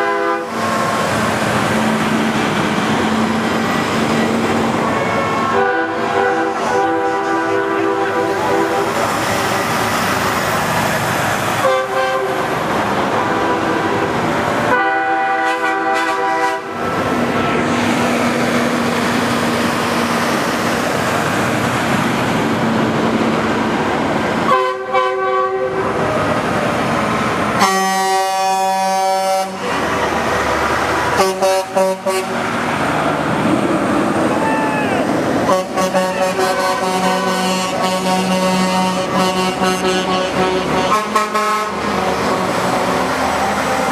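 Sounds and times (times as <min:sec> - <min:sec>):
truck air horns blasting: 0:00.0 - 0:02.2, 0:03.0 - 0:10.0, 0:11.4 - 0:18.7, 0:24.4 - 0:26.0, 0:27.6 - 0:29.8, 0:31.0 - 0:32.6, 0:35.4 - 0:43.9
passing trucks: 0:00.0 - 0:43.9.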